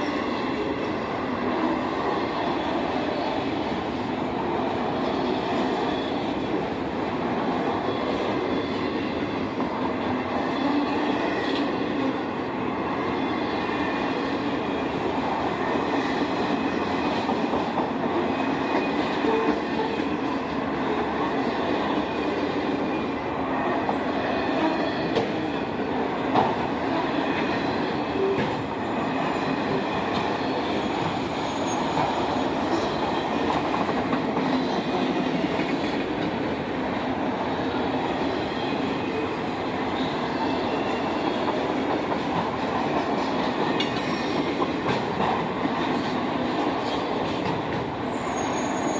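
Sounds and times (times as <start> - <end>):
railroad cars rumbling past: 0.0 - 48.9.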